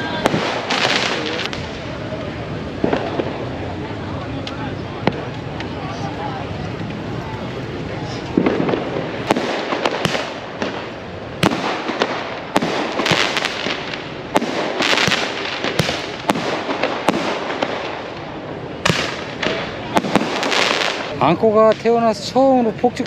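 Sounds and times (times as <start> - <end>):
firecracker bangs: 0.0 - 2.0, 2.7 - 3.8, 8.3 - 21.8
fireworks crackling bursts: 0.0 - 23.0
noisy background: 0.0 - 23.0.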